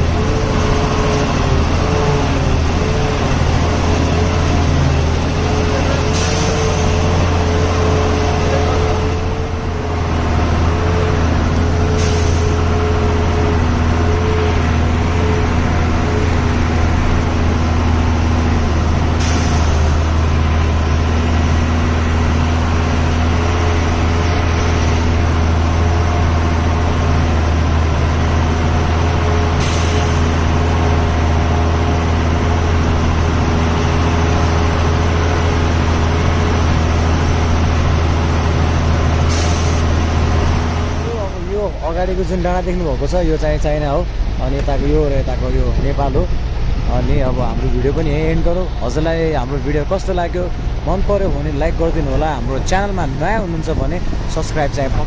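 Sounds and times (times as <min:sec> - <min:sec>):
truck diesel engine running: 0:00.0 - 0:55.0
short air hisses: 0:12.0 - 0:12.6, 0:19.2 - 0:19.9, 0:39.3 - 0:39.8.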